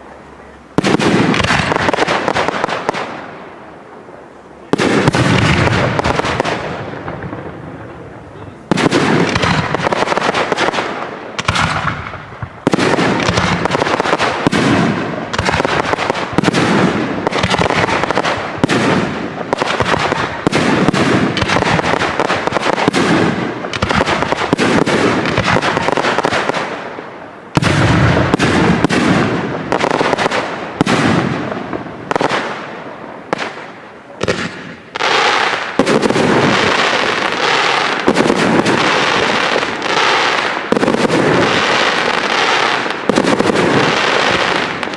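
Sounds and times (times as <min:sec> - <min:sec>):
heavy firework bang: 0:04.7 - 0:26.4, 0:27.6 - 0:32.5
firework shell bursts and crackling: 0:08.7 - 0:44.9.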